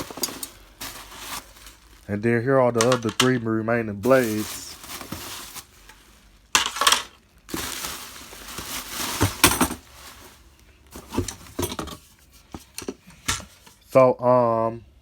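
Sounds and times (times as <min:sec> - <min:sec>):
packaging crinkling: 0:00.0 - 0:02.2, 0:04.0 - 0:11.8.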